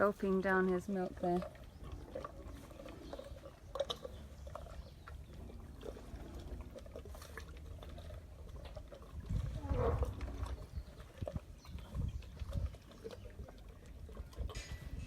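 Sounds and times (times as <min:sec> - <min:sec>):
elephant calf gulping milk: 0:00.0 - 0:15.0
wet clicks and sucking: 0:01.2 - 0:13.2.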